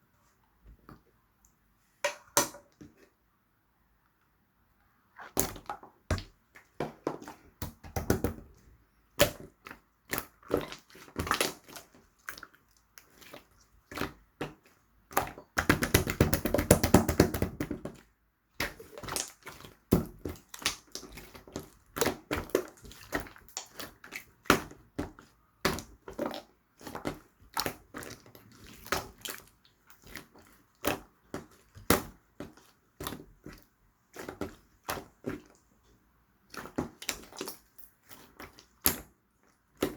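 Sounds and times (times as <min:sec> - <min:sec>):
slime squished by hand: 0:36.4 - 0:39.9.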